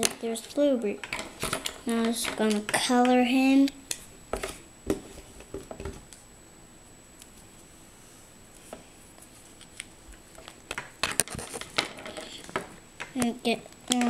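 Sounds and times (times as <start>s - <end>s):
colouring supplies clicking and knocking: 0.0s - 3.2s, 10.4s - 14.0s.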